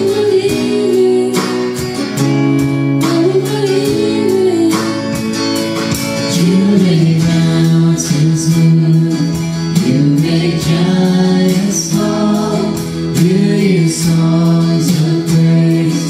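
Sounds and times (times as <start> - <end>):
guitar and band accompaniment: 0.0 - 16.0
person singing long notes: 2.8 - 5.2.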